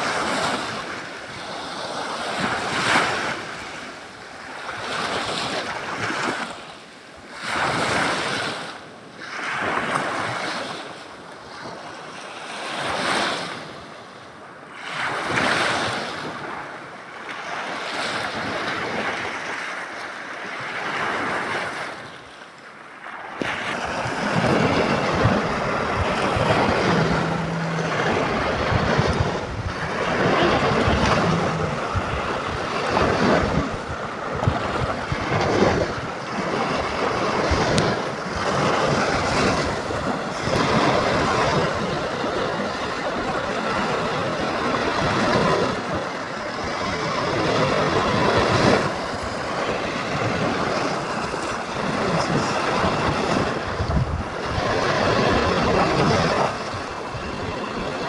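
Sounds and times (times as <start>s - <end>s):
waves washing onto shore: 20.7s - 58.0s
wind buffeting microphone: 23.4s - 41.6s, 50.2s - 58.0s
low rumble: 24.8s - 33.8s.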